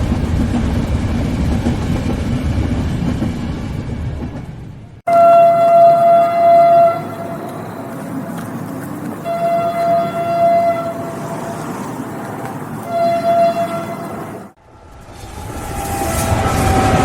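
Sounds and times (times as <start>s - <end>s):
passing train rumble: 0.0s - 17.0s
train horn blasts: 5.1s - 7.6s, 9.2s - 11.4s, 12.8s - 14.5s.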